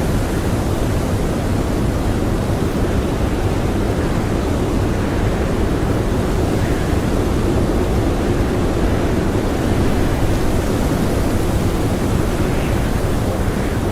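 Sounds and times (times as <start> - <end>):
blizzard wind blowing: 0.0 - 13.9.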